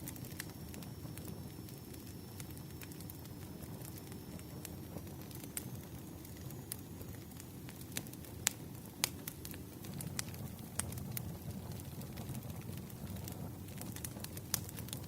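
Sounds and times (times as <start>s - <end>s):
wood fire crackling: 0.0s - 15.0s
sharp pops and snaps: 7.1s - 15.0s.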